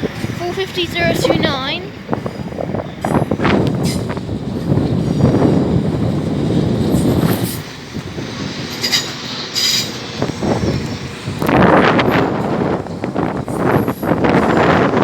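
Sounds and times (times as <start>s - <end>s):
train wheels rumbling on rails: 0.0s - 15.0s
high wheel squeals: 8.6s - 10.3s.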